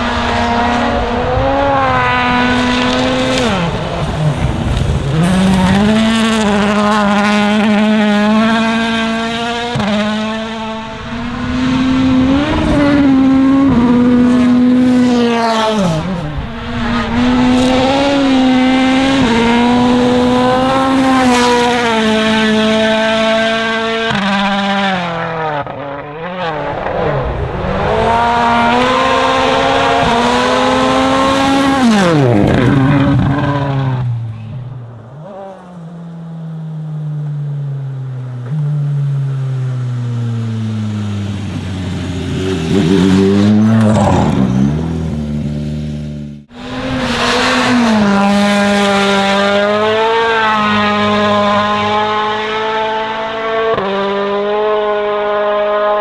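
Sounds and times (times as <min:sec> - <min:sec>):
rally car engine at full throttle: 0:00.0 - 0:56.0.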